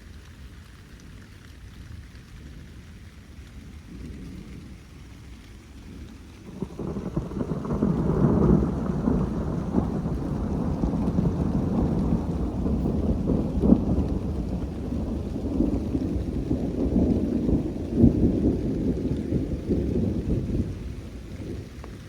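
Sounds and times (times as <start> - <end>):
rolling thunder: 5.9 - 22.0.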